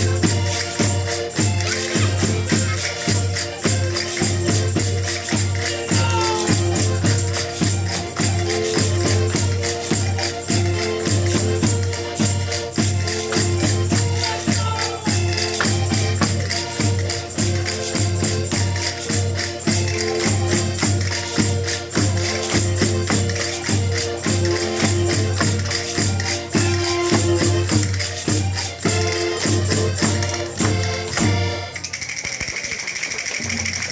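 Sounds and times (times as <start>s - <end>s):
rattling percussion: 0.0s - 33.9s
group singing: 5.8s - 6.9s.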